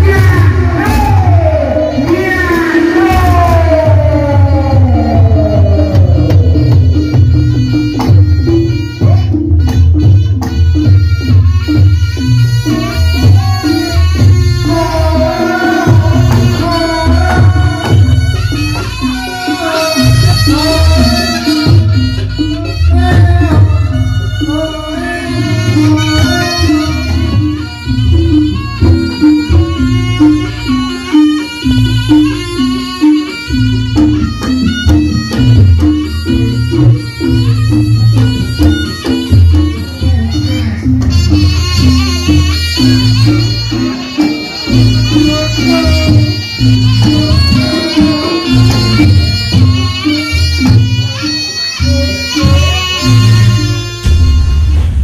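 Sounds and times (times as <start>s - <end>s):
drums and gongs struck: 0.0s - 55.0s
shrill reed melody: 10.0s - 55.0s
heavy drum strokes: 52.0s - 55.0s.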